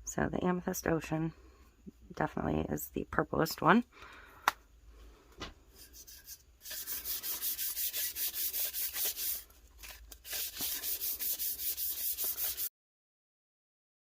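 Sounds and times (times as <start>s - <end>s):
brush rubbing strokes: 5.7s - 9.5s, 10.2s - 12.7s.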